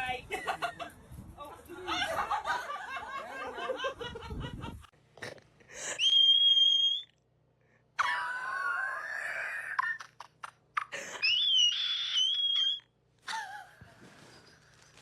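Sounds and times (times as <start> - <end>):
laughter: 0.3 - 4.9, 13.3 - 14.6.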